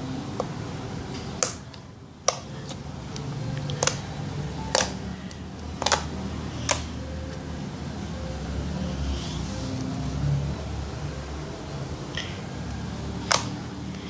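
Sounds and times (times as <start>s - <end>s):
slime popping and clicking: 1.4s - 4.0s, 4.7s - 5.0s, 5.8s - 6.9s.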